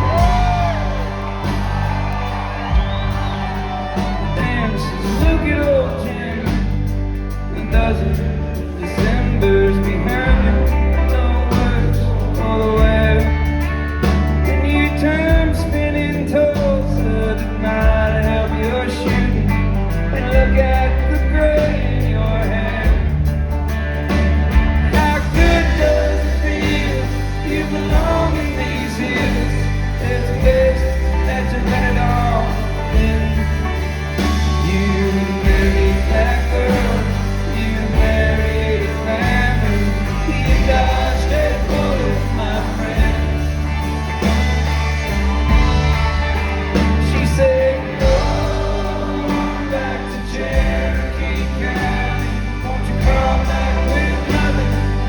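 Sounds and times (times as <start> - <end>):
person singing: 0.0 - 23.1, 24.9 - 55.0
country-rock band playing: 0.0 - 55.0.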